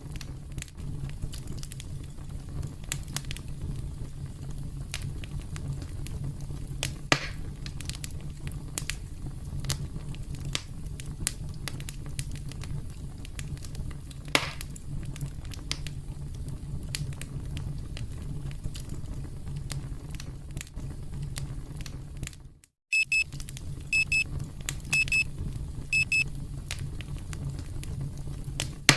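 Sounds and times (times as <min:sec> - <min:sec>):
campfire crackling and popping: 0:00.0 - 0:28.9
timer alarm beeps: 0:22.9 - 0:23.2, 0:24.0 - 0:24.2, 0:24.9 - 0:25.2, 0:26.0 - 0:26.2.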